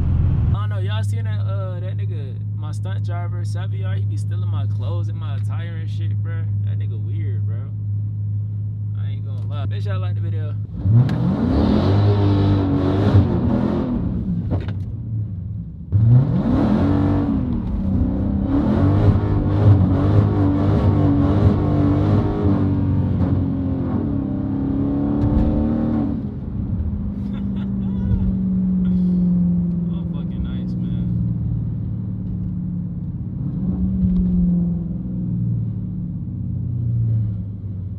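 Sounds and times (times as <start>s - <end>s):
car engine revving hard: 10.6s - 14.6s, 15.9s - 37.5s.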